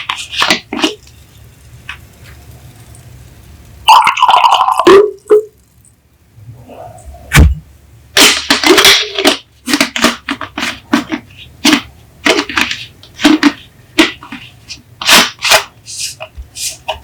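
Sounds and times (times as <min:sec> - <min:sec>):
plastic bottles crackling: 0:00.0 - 0:01.2, 0:08.2 - 0:15.7
dull thump: 0:07.3 - 0:07.7.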